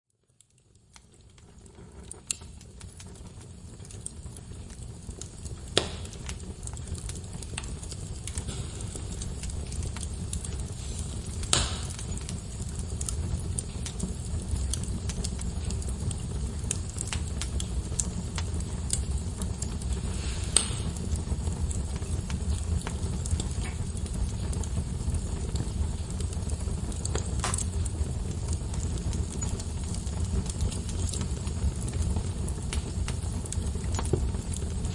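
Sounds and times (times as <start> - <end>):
low rumble of flame: 0.1 - 34.9
wood fire crackling: 0.1 - 34.9
sharp pops: 5.8 - 6.4, 11.4 - 12.1.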